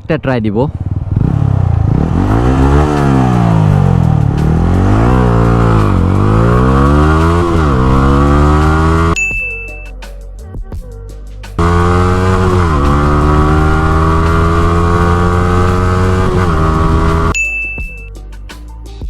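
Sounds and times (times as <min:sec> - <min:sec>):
motorcycle engine accelerating: 0:00.7 - 0:09.2, 0:11.6 - 0:17.4.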